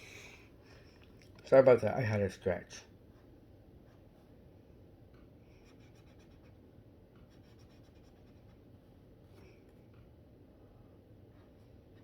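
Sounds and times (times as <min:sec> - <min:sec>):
pen scratching on paper: 0:05.6 - 0:06.6, 0:07.2 - 0:08.6.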